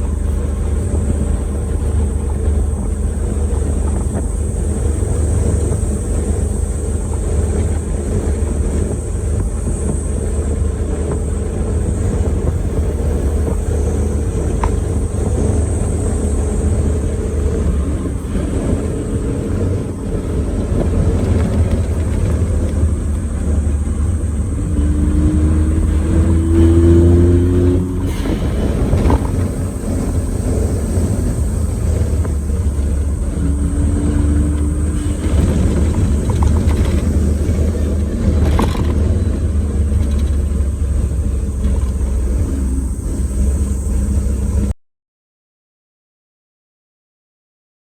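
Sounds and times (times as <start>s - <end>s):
car engine and road rumble: 0.0s - 44.8s
faint rising whine: 39.1s - 44.8s.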